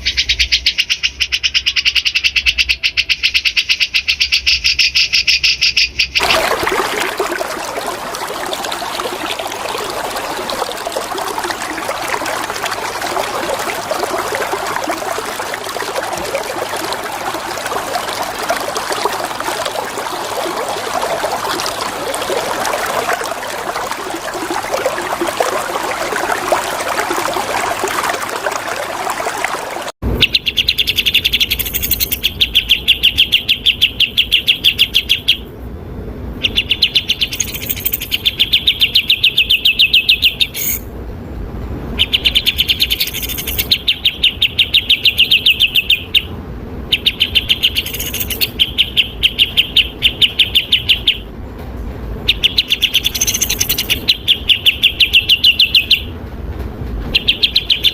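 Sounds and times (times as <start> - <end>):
songbird rapid trills: 0.0 - 35.4, 42.0 - 46.3, 47.0 - 51.2, 52.3 - 56.1
water trickling: 6.2 - 30.0, 37.2 - 39.0, 42.1 - 44.0, 47.0 - 50.8, 52.6 - 54.2.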